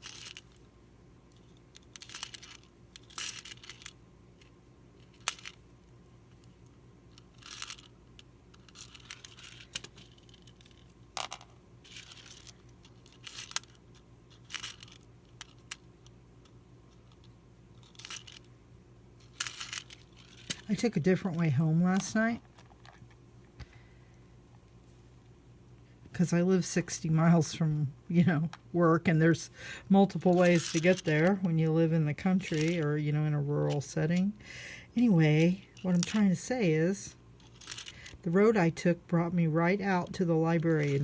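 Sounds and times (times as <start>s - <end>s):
beads clicking: 0.0s - 0.7s, 1.3s - 18.6s, 19.2s - 20.9s, 32.4s - 32.8s, 37.4s - 38.3s
low background hum: 0.0s - 41.0s.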